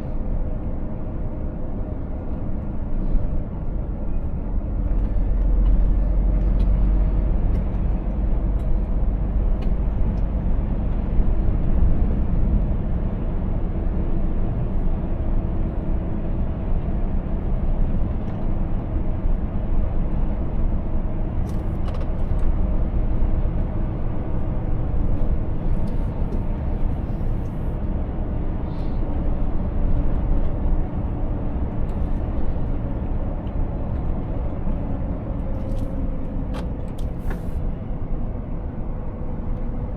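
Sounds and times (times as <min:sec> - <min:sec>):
tyre and road noise: 0:16.5 - 0:39.9.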